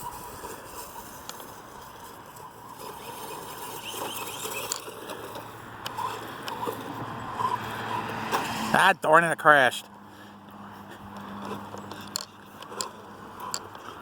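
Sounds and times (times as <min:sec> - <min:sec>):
electric motor whine: 0:00.0 - 0:08.7
tyres rustling through grass: 0:00.0 - 0:09.0
small clicks: 0:02.8 - 0:06.8.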